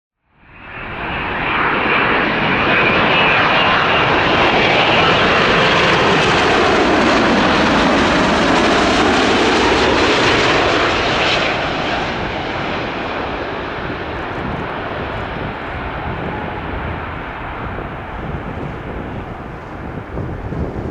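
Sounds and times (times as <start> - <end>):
jet airliner passing overhead: 0.4 - 20.9.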